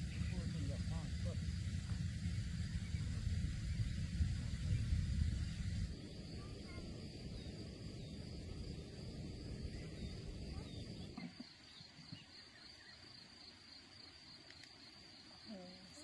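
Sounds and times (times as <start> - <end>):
low rumbling noise: 0.0 - 11.6
insect trill: 0.0 - 16.0.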